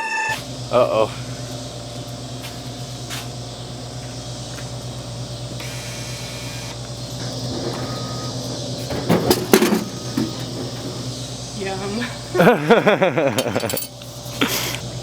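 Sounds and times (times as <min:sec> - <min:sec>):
vehicle engine drone from inside: 0:00.3 - 0:12.4.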